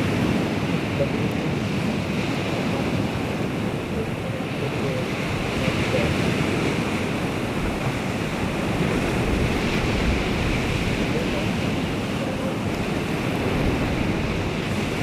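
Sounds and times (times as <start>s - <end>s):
surf washing on shore: 0.0s - 15.0s
wind buffeting microphone: 0.0s - 15.0s.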